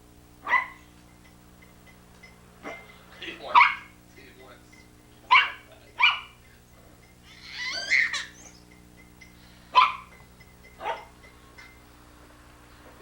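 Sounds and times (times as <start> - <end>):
dog barking: 0.4 - 0.9, 2.6 - 2.9, 3.5 - 4.0, 5.3 - 6.4, 9.7 - 10.2, 10.8 - 11.2
dog wavering call: 5.3 - 6.4, 7.3 - 8.7, 10.8 - 11.2.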